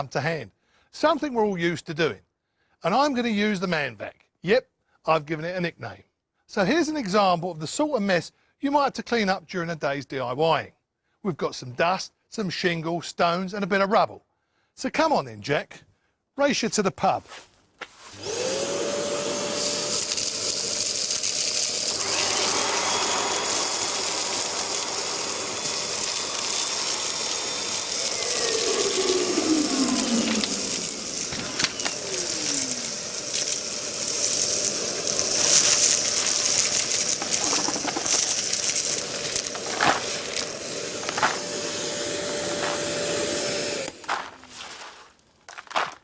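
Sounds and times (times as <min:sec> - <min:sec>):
wet and dry vacuum whining: 0:18.2 - 0:44.5
debris clicking in vacuum: 0:19.9 - 0:41.5.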